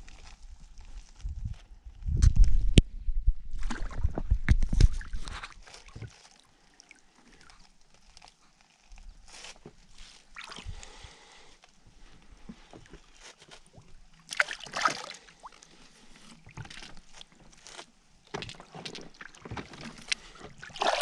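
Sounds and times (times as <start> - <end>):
water splashing around a boat: 11.8 - 21.0.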